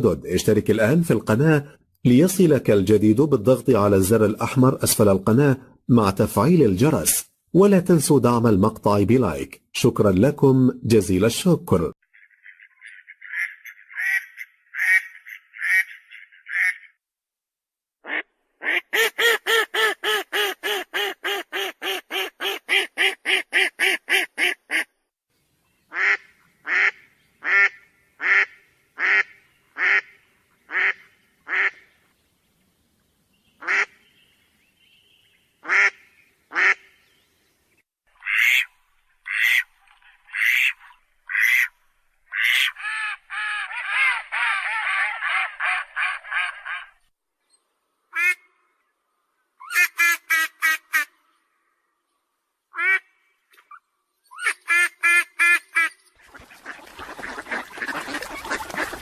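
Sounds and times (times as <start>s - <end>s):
ducks quacking: 12.1s - 16.9s, 54.4s - 59.0s.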